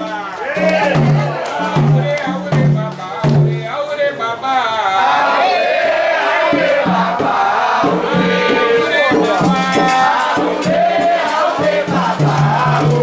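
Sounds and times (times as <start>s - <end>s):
group singing a ritual chant: 0.0s - 3.5s, 4.8s - 13.0s
percussion beat: 0.0s - 3.9s, 5.4s - 13.0s
shaker rattle: 9.1s - 13.0s.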